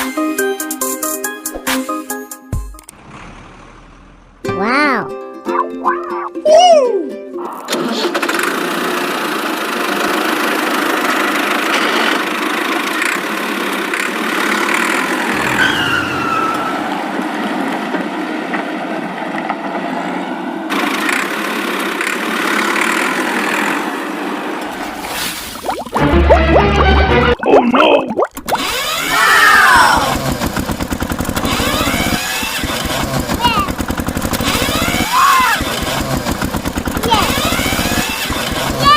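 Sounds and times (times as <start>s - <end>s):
vehicle engine running: 2.9s - 4.5s, 8.1s - 25.1s, 28.5s - 38.9s
falling whistle-like tone: 15.4s - 17.1s.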